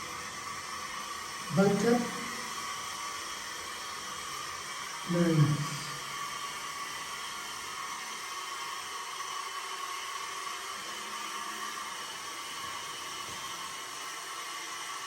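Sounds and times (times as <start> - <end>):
steady hissing noise: 0.0 - 8.5.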